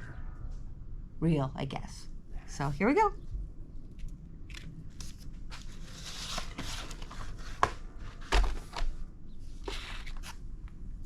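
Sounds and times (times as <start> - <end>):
rustling: 4.0 - 9.0.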